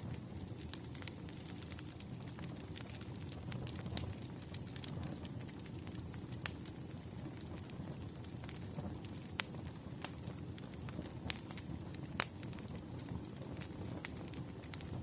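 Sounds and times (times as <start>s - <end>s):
firewood crackling and popping: 0.0s - 15.0s.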